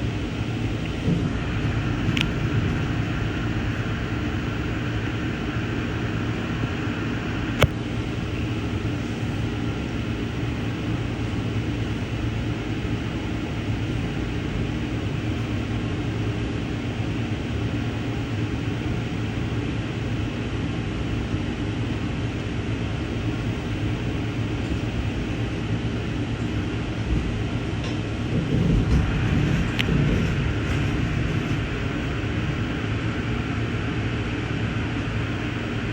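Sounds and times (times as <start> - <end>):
train wheels rumbling: 0.0 - 9.7, 22.3 - 35.6
low hum: 0.0 - 11.0, 20.4 - 35.9
train clanks: 0.1 - 6.8, 24.4 - 33.2.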